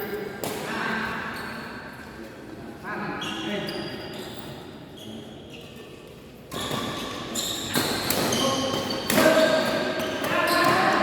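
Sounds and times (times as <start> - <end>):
shoes squeaking on court: 3.2 - 10.8.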